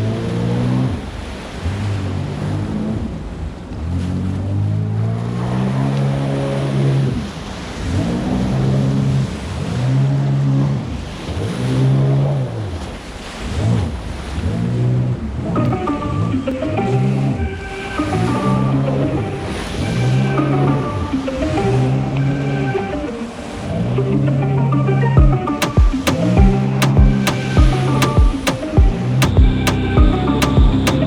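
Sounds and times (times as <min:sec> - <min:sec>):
jet ski engine: 0:00.0 - 0:16.4
wind: 0:00.0 - 0:31.0
water rushing: 0:25.2 - 0:31.0.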